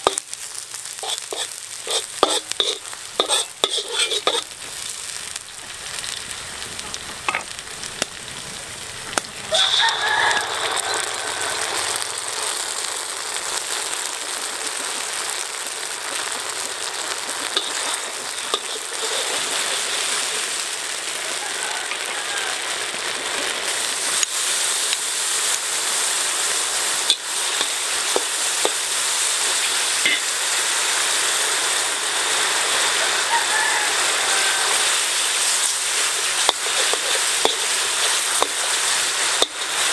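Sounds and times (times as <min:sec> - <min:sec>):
metal spatula scraping a wok: 0:00.0 - 0:00.2, 0:01.0 - 0:04.6, 0:17.4 - 0:20.3, 0:29.6 - 0:30.3, 0:34.8 - 0:39.9
shallots sizzling in hot oil: 0:00.0 - 0:39.9.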